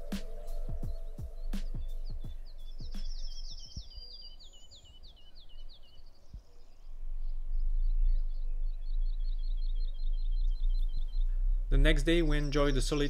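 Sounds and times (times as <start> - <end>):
low rumble: 0.0 - 3.5, 6.8 - 13.0
songbirds chirping and trilling: 0.0 - 13.0.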